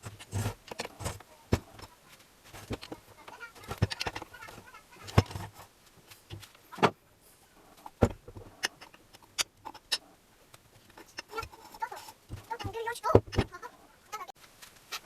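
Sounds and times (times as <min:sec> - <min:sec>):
hand tools and metal parts clicking: 0:00.0 - 0:02.0, 0:02.6 - 0:05.7, 0:07.8 - 0:13.4.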